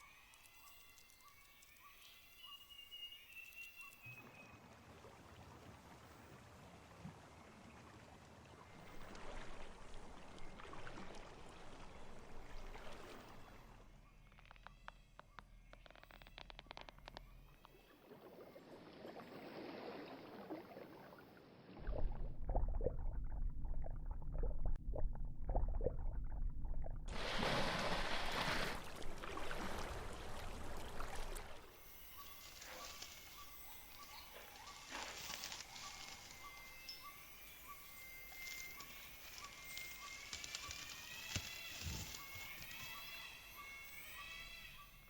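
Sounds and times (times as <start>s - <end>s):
water splashing and sloshing: 4.0s - 44.1s
rushing water: 4.1s - 13.8s, 27.1s - 36.8s
low rumble: 21.8s - 27.2s
high insect drone: 31.7s - 45.0s.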